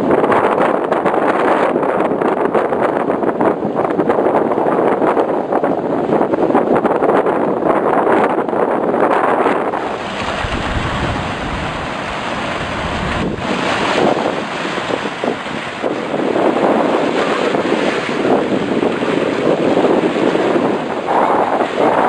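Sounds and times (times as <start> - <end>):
wind buffeting microphone: 0.0 - 22.0
sea wash: 9.4 - 22.0.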